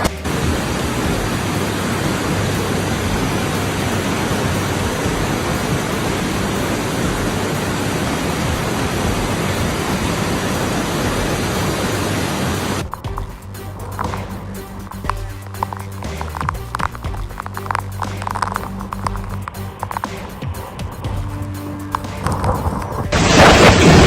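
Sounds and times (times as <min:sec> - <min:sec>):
storm rushing noise: 0:00.0 - 0:12.8, 0:22.2 - 0:24.0.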